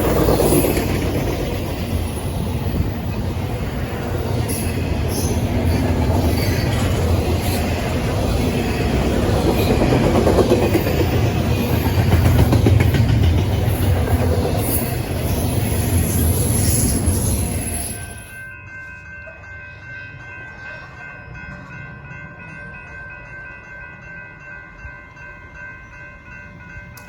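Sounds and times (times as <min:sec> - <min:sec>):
train wheels rumbling on rail: 0:00.0 - 0:18.4.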